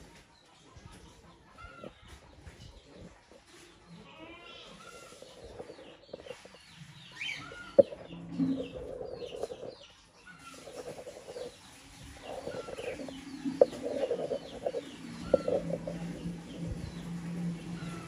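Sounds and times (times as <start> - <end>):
high bird chirps: 12.2 - 18.0
lower rough bird calls: 12.2 - 18.0.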